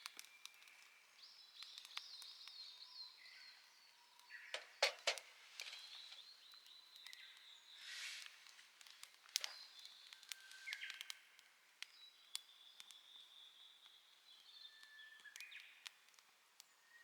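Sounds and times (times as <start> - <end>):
small birds singing: 0.0 - 17.0
sharp clicks: 4.6 - 5.8.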